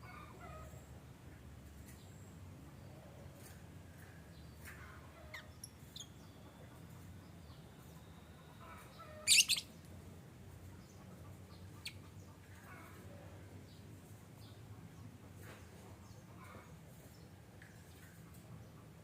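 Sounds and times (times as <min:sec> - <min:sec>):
lovebirds chirping: 0:04.4 - 0:09.9.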